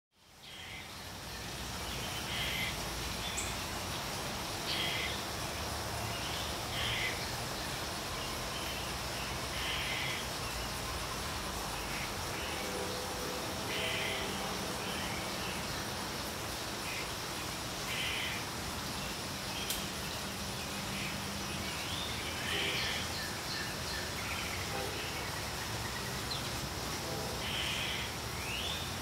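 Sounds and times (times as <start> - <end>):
outdoor background noise: 0.1 - 29.0
raspy bird calls: 2.1 - 3.6, 4.7 - 5.3, 6.7 - 7.4, 9.5 - 10.4, 17.8 - 18.5.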